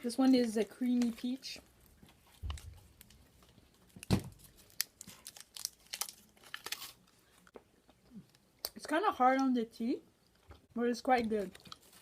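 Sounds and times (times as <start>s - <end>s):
candy wrapper crinkling: 0.1s - 7.5s.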